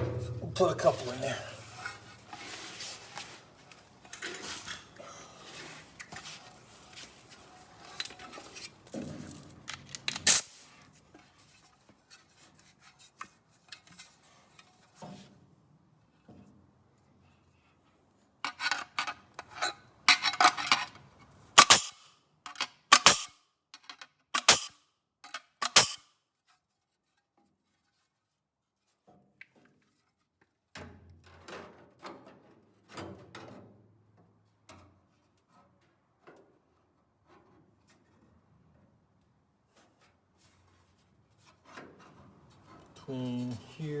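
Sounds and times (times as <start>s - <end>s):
soft knocks and rubbing: 0.0s - 3.5s
metallic clicks on sheet metal: 21.6s - 24.7s, 25.4s - 26.0s.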